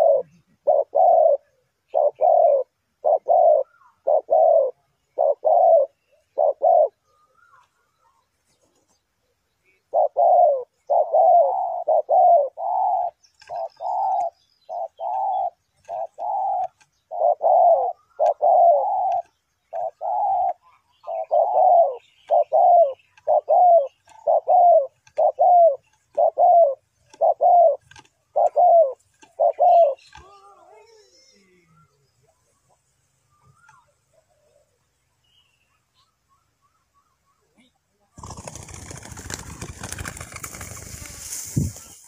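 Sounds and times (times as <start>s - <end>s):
dove cooing: 0.0s - 8.2s, 9.7s - 32.0s.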